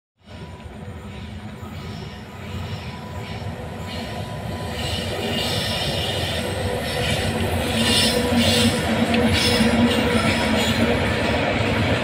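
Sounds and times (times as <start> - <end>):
freight train rumbling on rails: 0.2 - 12.0.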